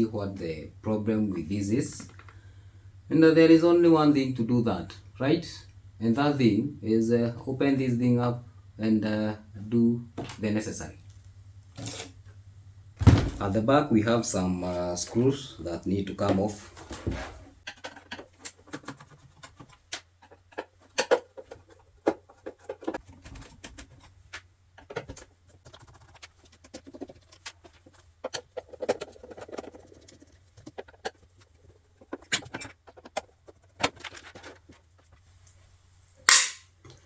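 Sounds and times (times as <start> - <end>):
screwdriver clicks and scrapes: 36.3 - 36.6.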